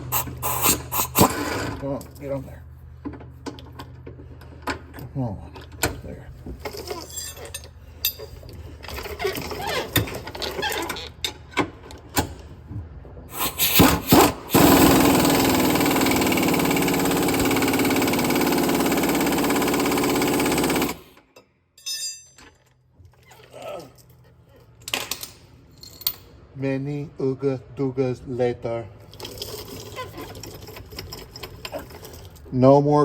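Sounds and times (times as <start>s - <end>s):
impact wrench hammering: 13.4s - 21.1s.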